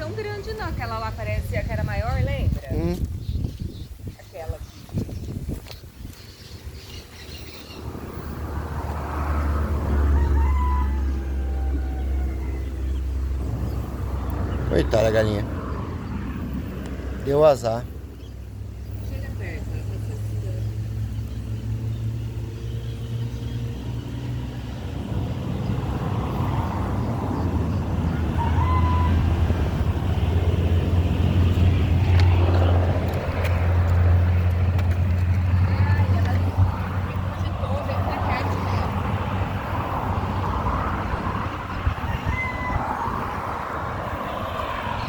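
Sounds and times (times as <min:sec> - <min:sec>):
rooster crowing: 0:09.3 - 0:13.5, 0:26.8 - 0:30.0, 0:40.8 - 0:45.0
steady low rumble: 0:12.0 - 0:22.0, 0:29.3 - 0:45.0.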